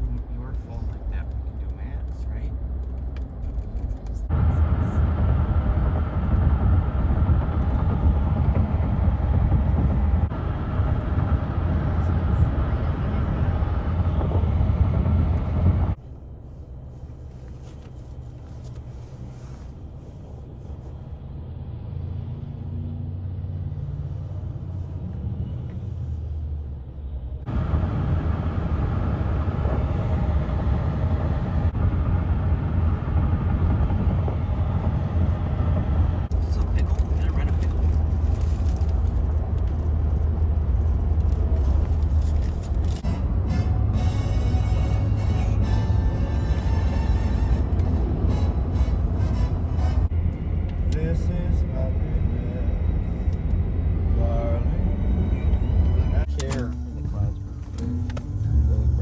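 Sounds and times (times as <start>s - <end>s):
highway traffic noise: 0.0s - 59.0s
engine note rising in pitch: 43.0s - 52.2s.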